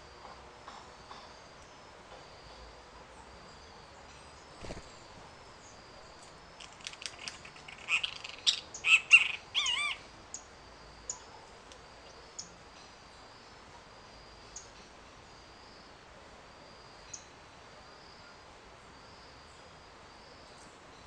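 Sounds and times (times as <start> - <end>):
birds chirping and trilling: 6.8 - 10.5.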